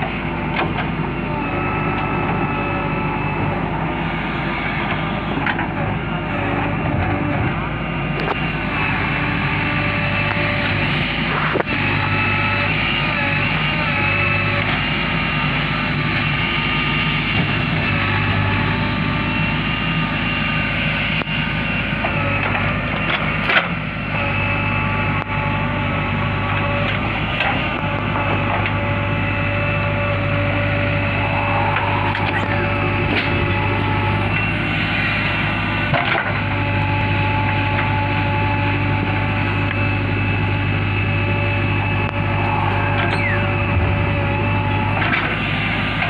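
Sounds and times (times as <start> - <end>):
diesel engine under load: 0.0 - 46.0
whine bending in pitch: 25.0 - 46.0.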